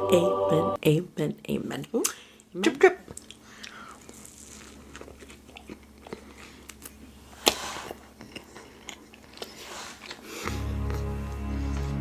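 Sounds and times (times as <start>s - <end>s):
chewing with wet mouth clicks: 3.1s - 11.0s
loud crunchy bite: 4.0s - 10.7s
music: 10.4s - 12.0s.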